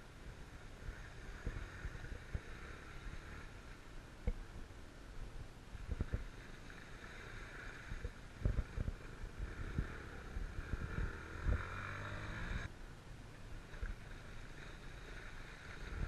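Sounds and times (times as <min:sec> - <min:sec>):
motorcycle engine running: 0:06.0 - 0:12.7
wind buffeting microphone: 0:07.9 - 0:11.8.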